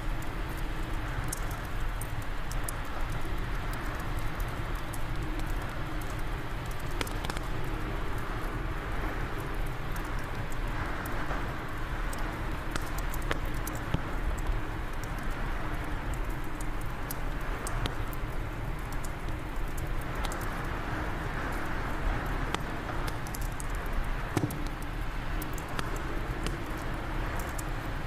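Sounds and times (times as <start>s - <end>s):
fireplace fire crackling: 0.0s - 28.0s.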